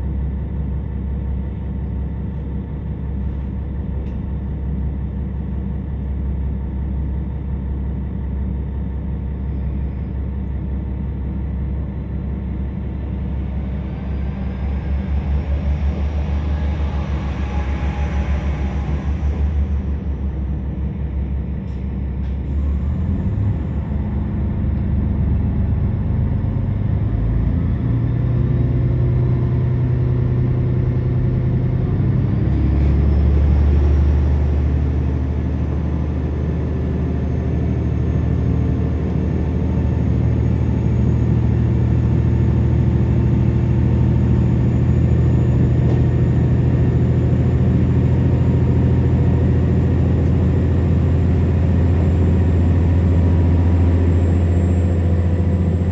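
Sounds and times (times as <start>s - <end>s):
diesel railcar engine drone: 0.0s - 55.9s
faint rising whine: 11.4s - 55.9s.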